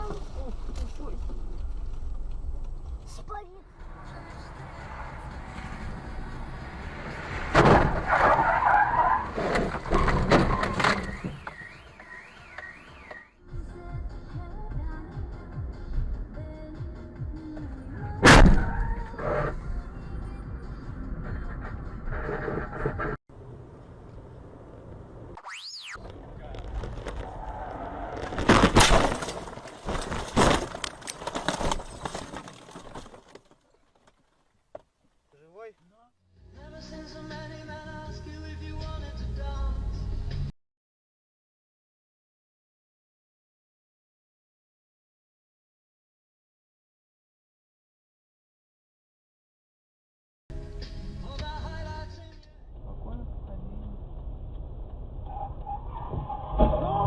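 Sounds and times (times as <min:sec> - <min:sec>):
road rumble inside car: 0:00.0 - 0:07.5, 0:17.7 - 0:25.4, 0:52.6 - 0:57.0
screeching skid: 0:03.9 - 0:13.2, 0:18.5 - 0:19.7, 0:27.0 - 0:29.5, 0:55.2 - 0:57.0
car crash: 0:04.4 - 0:13.2, 0:18.2 - 0:19.6, 0:25.4 - 0:34.5, 0:54.0 - 0:57.0
bang: 0:07.1 - 0:08.4, 0:18.2 - 0:19.0, 0:27.4 - 0:33.0
clattering and scraping: 0:09.2 - 0:11.4, 0:26.1 - 0:34.9
warbling tone: 0:25.4 - 0:26.1
crunching knocks: 0:28.1 - 0:35.1.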